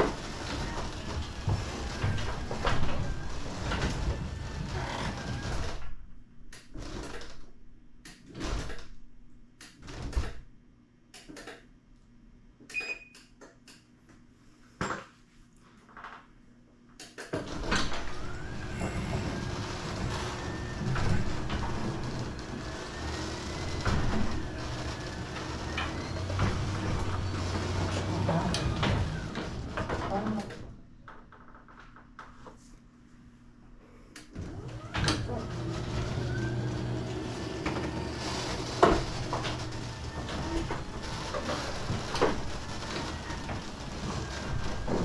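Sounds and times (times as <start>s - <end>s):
garage door rollers rumbling: 0.0s - 6.0s, 6.7s - 7.5s, 17.4s - 32.0s, 34.4s - 45.0s.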